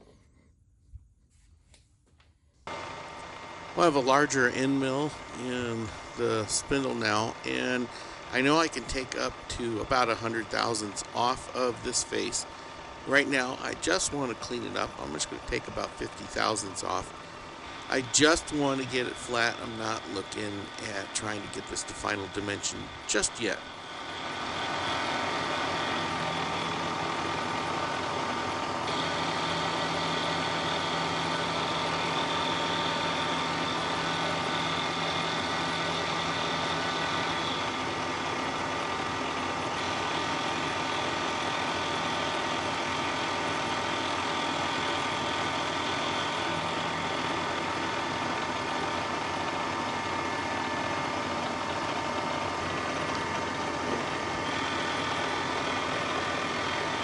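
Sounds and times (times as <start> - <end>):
high cutting whine: 2.7 - 57.0
milling machine motor hum: 2.7 - 57.0.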